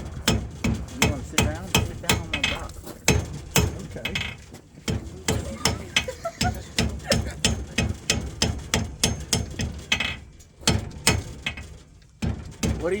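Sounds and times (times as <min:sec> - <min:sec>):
hammer striking metal on anvil: 0:00.2 - 0:04.3, 0:04.9 - 0:09.7.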